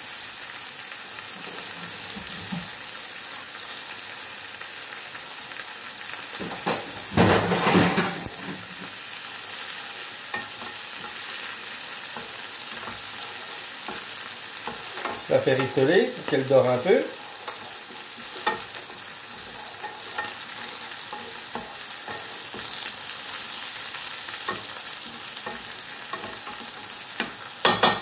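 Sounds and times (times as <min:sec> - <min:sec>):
meat sizzling in a frying pan: 0:00.0 - 0:28.0
wooden spatula stirring pan: 0:09.9 - 0:28.0.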